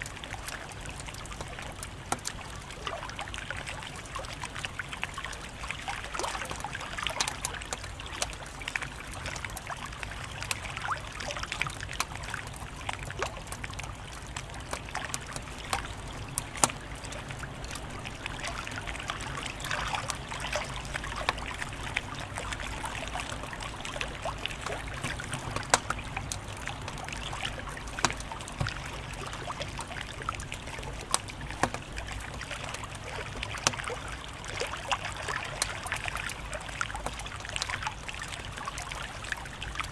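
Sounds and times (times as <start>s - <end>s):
wood fire crackling and popping: 0.3s - 2.8s, 23.5s - 33.9s.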